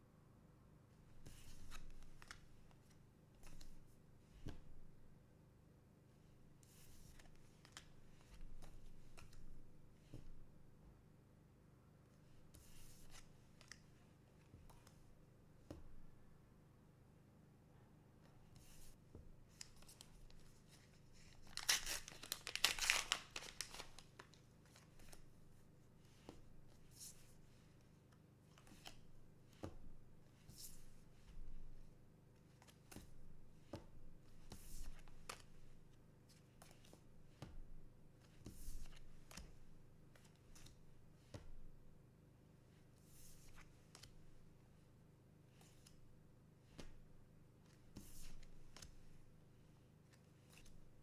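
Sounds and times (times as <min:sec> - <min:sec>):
cards and packaging rustling: 0:21.4 - 0:25.1
card pack wrapper tearing: 0:21.5 - 0:24.3.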